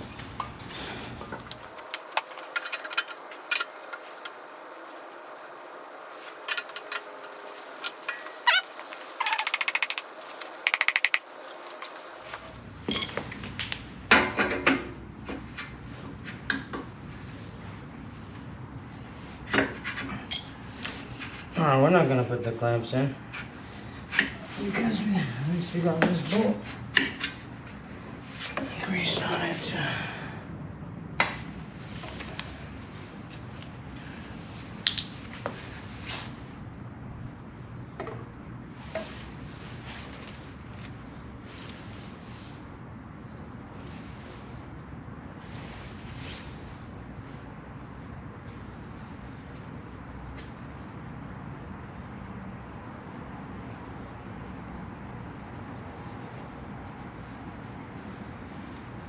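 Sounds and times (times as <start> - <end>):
steady low hum: 1.0 - 12.9
metal parts clinking: 1.2 - 12.6.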